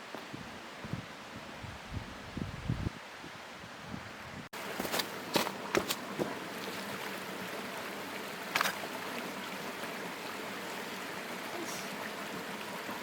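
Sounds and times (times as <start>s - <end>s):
stream running: 4.6s - 13.0s.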